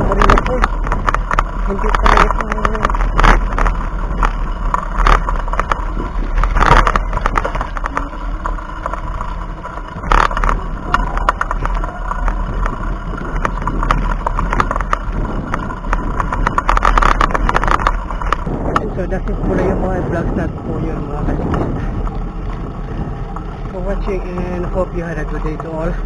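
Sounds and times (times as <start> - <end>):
bumps: 0.0 - 26.0
road noise rumble: 0.0 - 26.0
wind rushing over microphone: 0.0 - 26.0.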